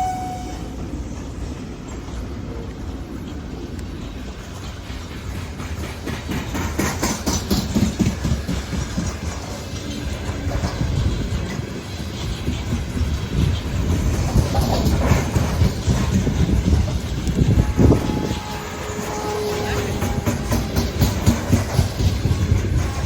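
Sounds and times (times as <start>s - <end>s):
freight train rumble: 0.0s - 23.0s
wheels clattering on rails: 0.0s - 23.0s.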